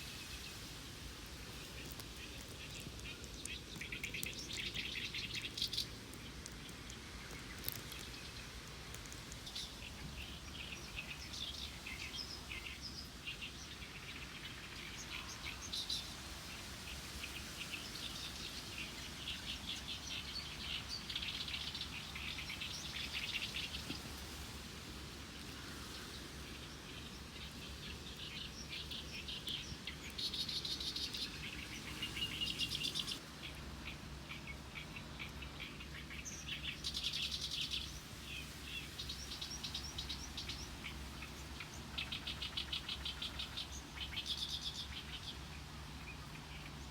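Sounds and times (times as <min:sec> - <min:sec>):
small birds chirping: 0:00.0 - 0:46.9.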